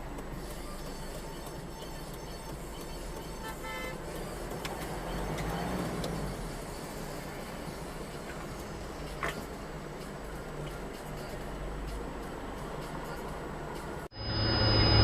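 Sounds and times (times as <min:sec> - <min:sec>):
road traffic noise: 0:00.0 - 0:15.0
car horn toot: 0:02.9 - 0:04.3.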